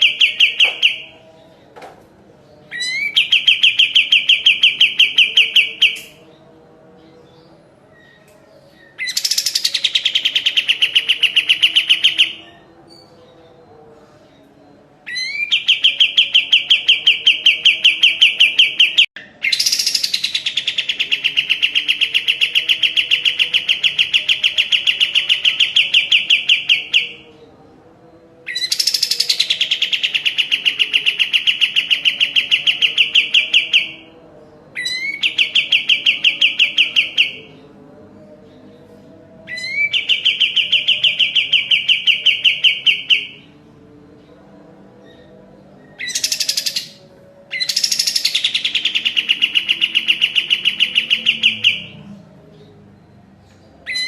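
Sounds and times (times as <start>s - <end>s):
songbird trilling: 46.0s - 51.9s.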